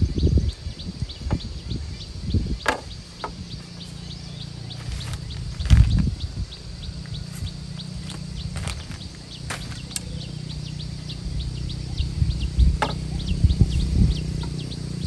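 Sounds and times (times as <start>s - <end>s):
steady low hum: 0.0s - 15.0s
sharp knocks: 2.6s - 3.4s, 12.8s - 13.0s.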